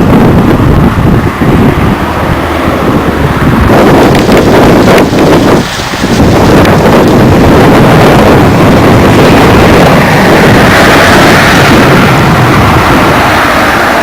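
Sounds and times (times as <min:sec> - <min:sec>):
train passing close by: 0:00.0 - 0:14.0
bright hiss: 0:04.1 - 0:07.2.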